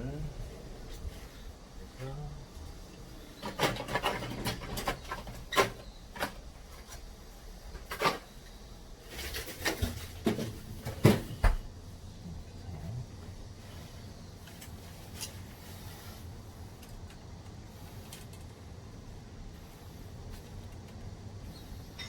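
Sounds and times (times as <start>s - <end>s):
hard objects clicking and knocking: 3.4s - 6.5s.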